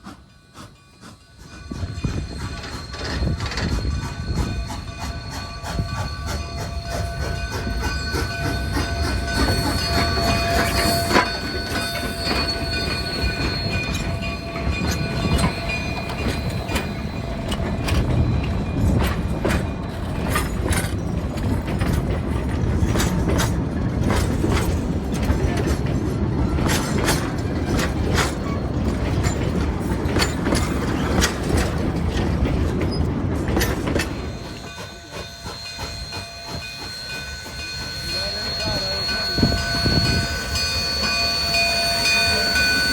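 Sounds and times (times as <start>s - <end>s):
railroad cars rumbling: 0.0s - 42.9s
wheels clicking over rail joints: 1.1s - 42.9s
wheel squeal: 6.0s - 19.0s, 33.6s - 42.9s.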